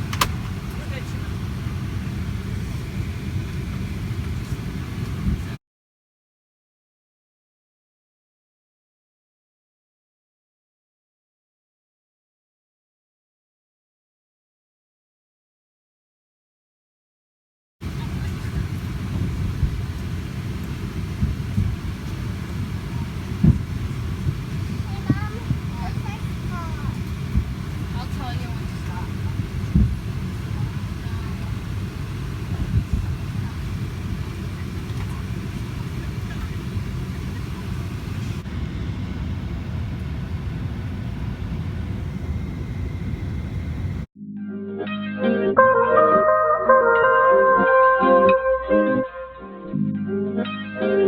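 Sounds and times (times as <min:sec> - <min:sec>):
jet engines and airflow rumble: 0:00.0 - 0:05.6, 0:17.8 - 0:44.1.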